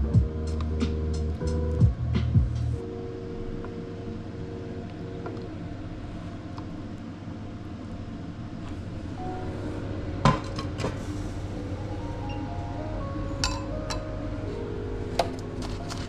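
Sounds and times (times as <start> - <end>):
steady low hum: 0.0 - 16.0
tableware clink: 13.4 - 14.0.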